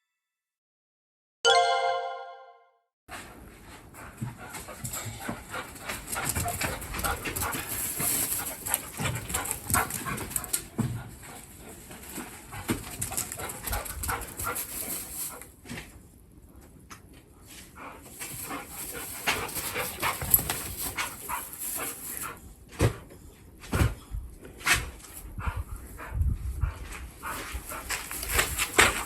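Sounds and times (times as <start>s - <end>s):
dog panting: 3.8s - 15.4s, 17.5s - 22.4s, 25.0s - 29.0s.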